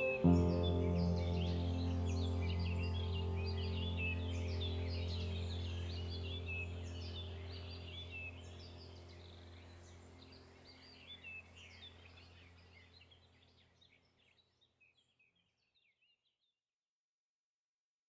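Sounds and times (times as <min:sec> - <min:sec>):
low steady hum: 0:00.0 - 0:13.4
small birds chirping: 0:00.0 - 0:16.3.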